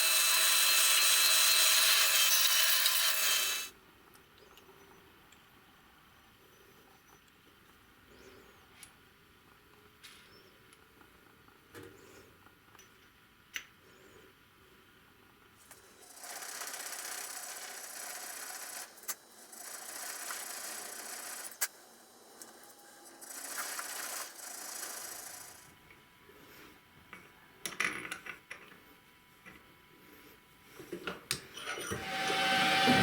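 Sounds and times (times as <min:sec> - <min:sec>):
rough grinding on metal: 0:31.9 - 0:33.0.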